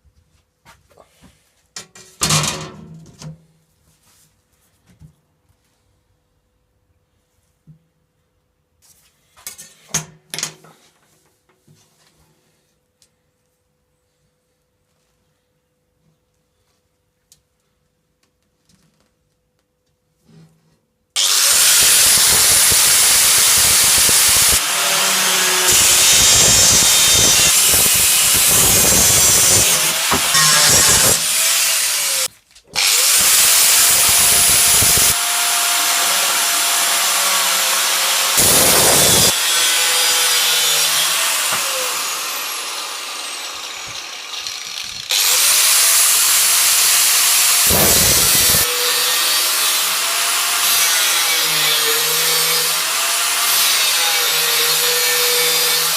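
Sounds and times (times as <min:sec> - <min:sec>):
power tool rasping on steel: 0:21.2 - 0:46.5, 0:47.4 - 0:52.8.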